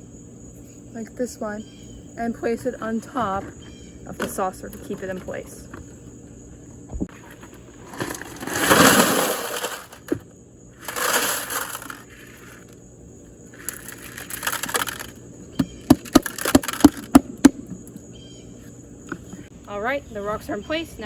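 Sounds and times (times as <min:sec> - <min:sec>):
rocks rattling in a foil tray: 0:07.2 - 0:12.8, 0:13.5 - 0:15.2, 0:15.8 - 0:17.2
stones clacking together: 0:13.6 - 0:17.6.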